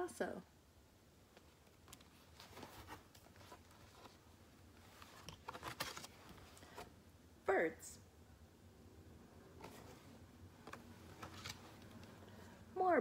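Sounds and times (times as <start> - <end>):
picture book rustling and tapping: 1.3 - 6.9, 9.6 - 12.2.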